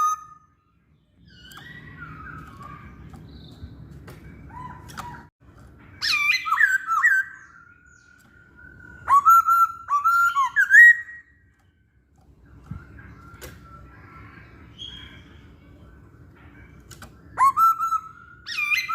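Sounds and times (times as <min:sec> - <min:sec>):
bird whistled song bursts: 0:01.3 - 0:03.7, 0:06.0 - 0:11.4, 0:17.3 - 0:18.9.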